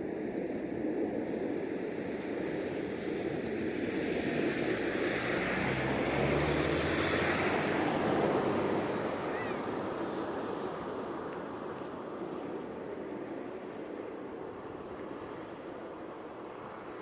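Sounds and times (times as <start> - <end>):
aircraft engine rushing: 3.6 - 14.8.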